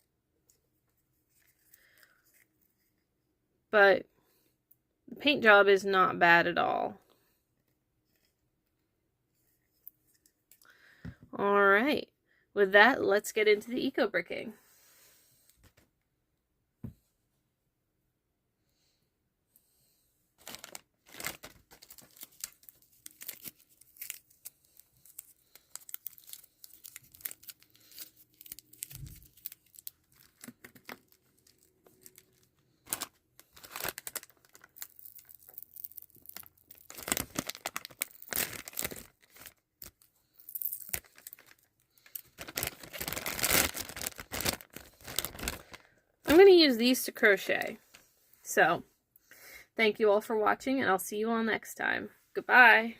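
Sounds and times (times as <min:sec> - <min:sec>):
plastic packaging torn and crumpled: 0:20.4 - 0:45.9.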